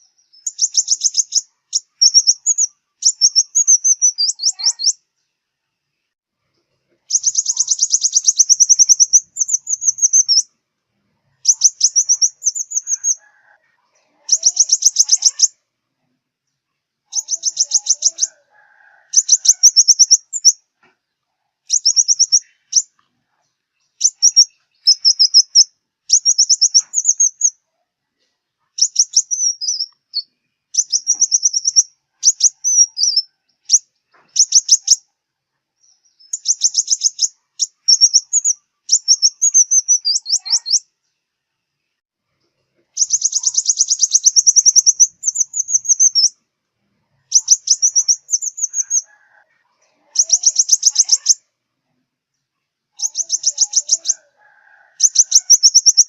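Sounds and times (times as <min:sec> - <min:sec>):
sunbird singing trilled phrases: 0:00.0 - 0:05.0, 0:07.1 - 0:10.5, 0:11.4 - 0:13.2, 0:14.3 - 0:15.6, 0:17.1 - 0:18.3, 0:19.2 - 0:20.6, 0:21.7 - 0:22.9, 0:23.9 - 0:27.6, 0:28.8 - 0:33.8, 0:34.4 - 0:35.0, 0:35.8 - 0:40.9, 0:43.0 - 0:46.4, 0:47.3 - 0:49.1, 0:50.2 - 0:51.5, 0:52.9 - 0:54.3, 0:55.0 - 0:56.0.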